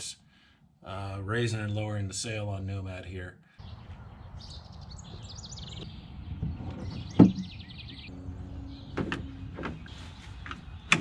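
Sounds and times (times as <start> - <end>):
birds chirping: 0.0 - 11.0
sailboat rigging knocks and clunks: 5.7 - 11.0.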